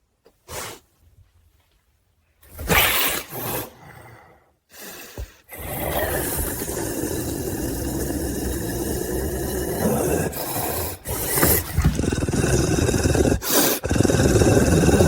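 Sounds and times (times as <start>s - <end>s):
wild cat growling: 5.5s - 15.0s.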